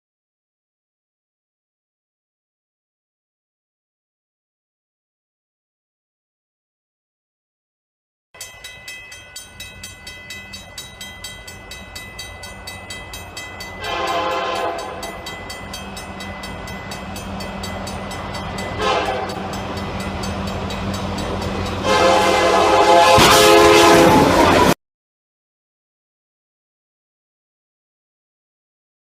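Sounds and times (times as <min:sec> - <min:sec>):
train running with clicking: 0:08.4 - 0:24.8
train horn: 0:13.8 - 0:15.2, 0:18.8 - 0:19.6, 0:21.7 - 0:24.8.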